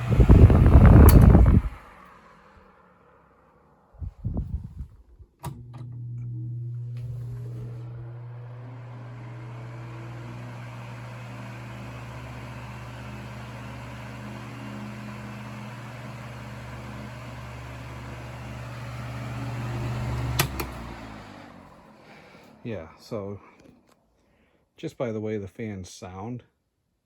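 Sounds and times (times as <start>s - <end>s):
electric fan whirring: 0.0s - 2.8s, 4.0s - 23.0s
sharp click: 1.0s - 1.4s, 20.4s - 20.8s.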